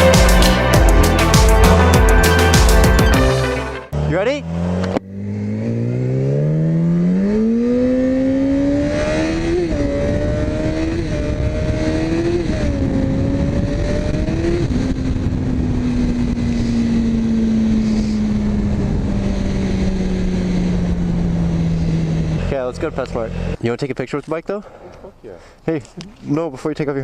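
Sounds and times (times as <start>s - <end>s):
motorcycle engine accelerating: 0.0s - 23.6s
wind on microphone: 8.0s - 22.4s.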